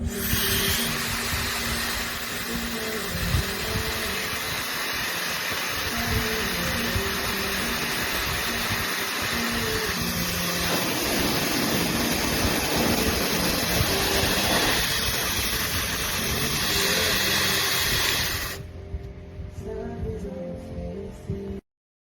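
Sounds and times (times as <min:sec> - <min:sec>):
hair dryer running: 0:00.0 - 0:18.6.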